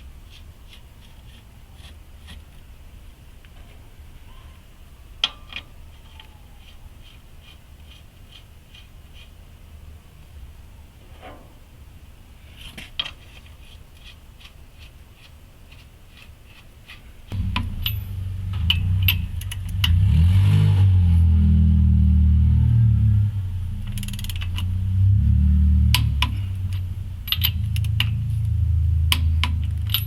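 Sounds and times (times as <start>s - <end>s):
truck engine starting and revving: 17.4s - 30.0s.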